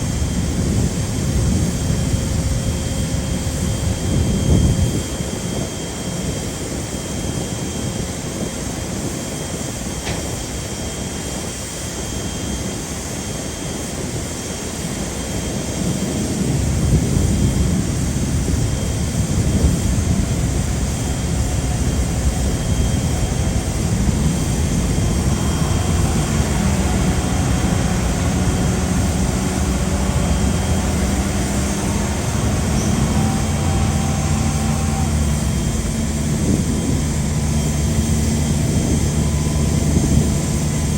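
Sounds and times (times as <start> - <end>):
jet engines rumbling: 0.0 - 40.9
low steady hum: 17.0 - 40.9.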